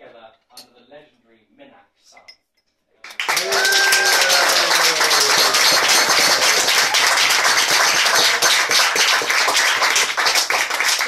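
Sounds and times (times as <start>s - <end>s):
crowd applauding: 3.0s - 11.0s.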